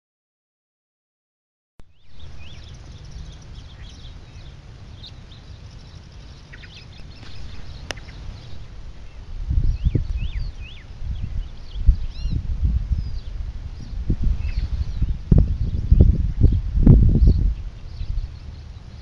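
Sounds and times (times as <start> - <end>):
small birds chirping: 1.8 - 19.0
steady low rumble: 1.8 - 19.0
sharp click: 7.2 - 8.1.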